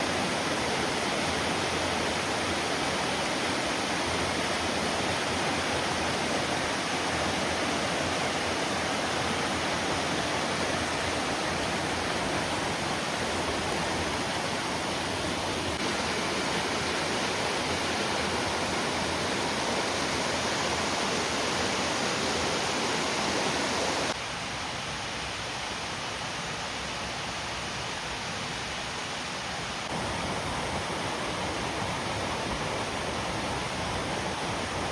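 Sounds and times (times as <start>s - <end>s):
waterfall rushing: 0.0s - 25.3s.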